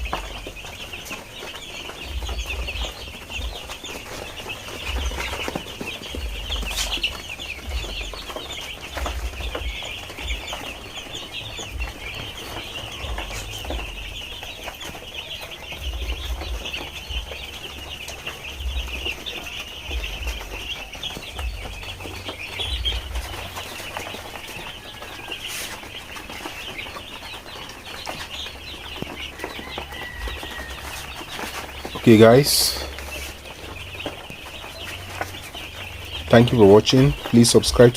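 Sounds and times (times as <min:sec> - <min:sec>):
low rumbling: 0:00.0 - 0:25.2
chicks peeping: 0:00.0 - 0:37.9.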